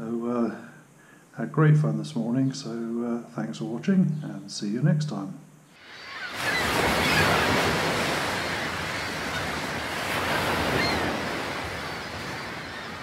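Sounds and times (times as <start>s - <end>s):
sea surf washing onto beach: 5.8s - 13.0s.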